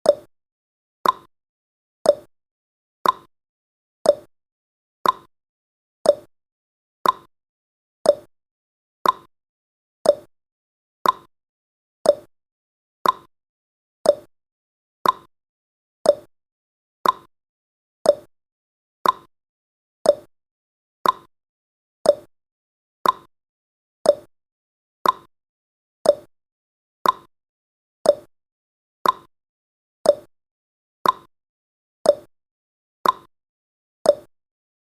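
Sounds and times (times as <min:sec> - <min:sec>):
clock ticking: 0:01.0 - 0:01.3, 0:05.0 - 0:05.3, 0:07.0 - 0:07.3, 0:08.1 - 0:08.3, 0:09.0 - 0:09.3, 0:10.1 - 0:10.3, 0:11.0 - 0:11.3, 0:12.1 - 0:12.3, 0:13.0 - 0:13.3, 0:14.1 - 0:14.3, 0:15.0 - 0:15.3, 0:16.1 - 0:16.3, 0:17.0 - 0:17.3, 0:18.1 - 0:18.3, 0:19.0 - 0:19.3, 0:20.1 - 0:20.3, 0:21.0 - 0:21.3, 0:22.1 - 0:22.3, 0:23.0 - 0:23.3, 0:24.1 - 0:24.3, 0:25.0 - 0:25.3, 0:26.0 - 0:26.3, 0:27.0 - 0:27.3, 0:28.1 - 0:28.3, 0:29.0 - 0:29.3, 0:30.1 - 0:30.3, 0:31.0 - 0:31.3, 0:32.1 - 0:32.3, 0:33.0 - 0:33.3, 0:34.1 - 0:34.3.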